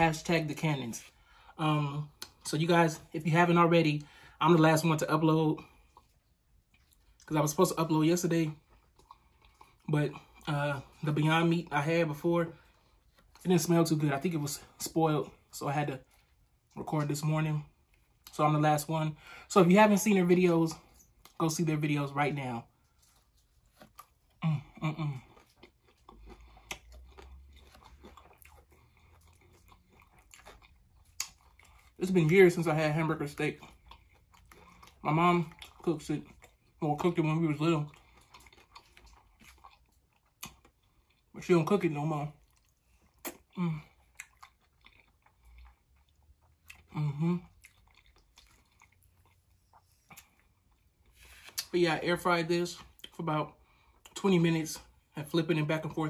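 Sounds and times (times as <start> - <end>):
wet chewing clicks and smacks: 2.0 - 2.5, 5.7 - 7.4, 8.6 - 10.5, 22.6 - 51.8
closed-mouth hums: 46.9 - 47.5.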